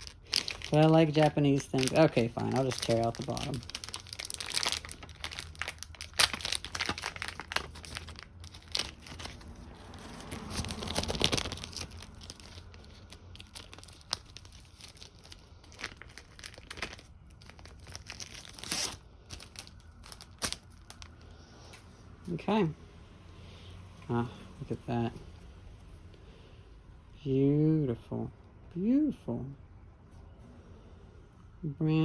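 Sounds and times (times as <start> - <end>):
packaging being torn open: 0.0 - 21.2.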